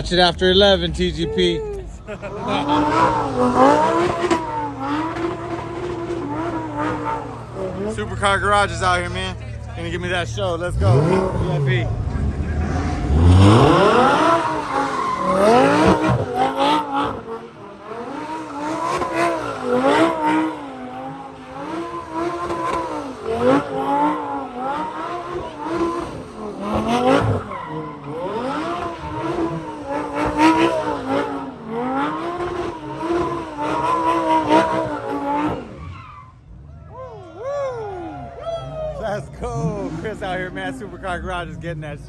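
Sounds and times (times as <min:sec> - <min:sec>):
car engine at high revs: 0:00.0 - 0:42.0
tyres squealing: 0:13.0 - 0:41.0.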